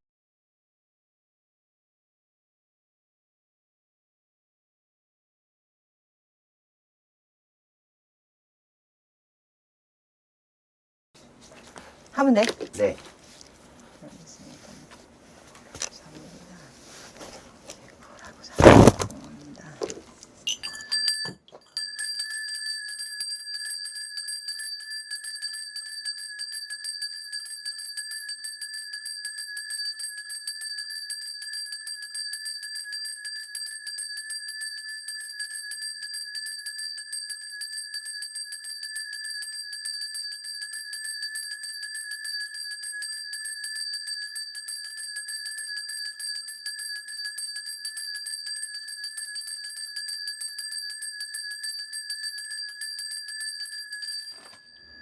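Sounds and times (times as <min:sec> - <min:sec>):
bell cluster jingling: 0:12.2 - 0:13.4, 0:18.5 - 0:55.0.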